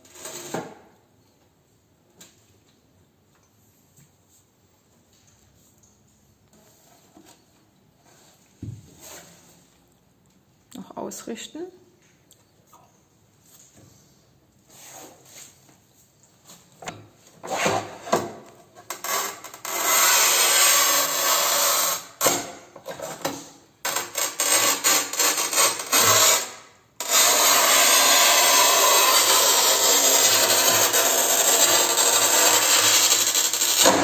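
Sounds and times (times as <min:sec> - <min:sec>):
tool scraping over tile: 0:17.4 - 0:34.0.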